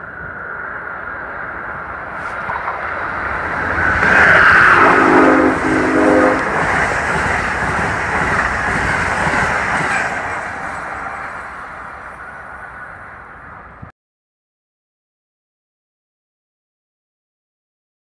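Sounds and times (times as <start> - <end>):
train wheels rumbling on rail: 0.0 - 13.9
train horn chord: 4.1 - 6.8.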